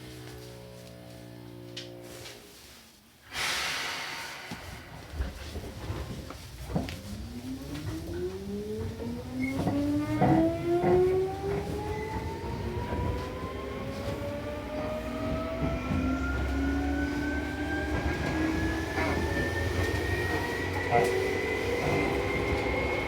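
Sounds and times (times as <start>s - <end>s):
train running rumble: 3.6s - 23.0s
train traction motors whining: 5.2s - 23.0s
rail-joint clacks: 7.8s - 13.3s.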